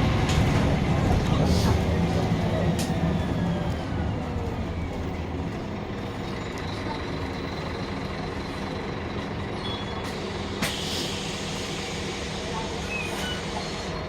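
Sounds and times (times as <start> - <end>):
bus engine running: 0.0 - 14.0.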